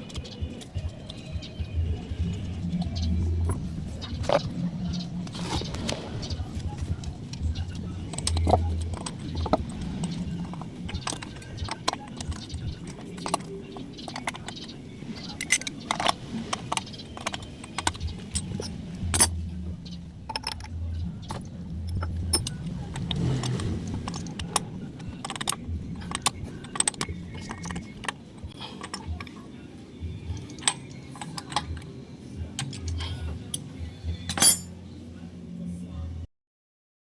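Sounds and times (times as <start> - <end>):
low hum: 0.0 - 36.3
light metallic clicks and clinks: 6.8 - 19.4, 20.3 - 29.4, 30.3 - 31.9, 32.6 - 34.8.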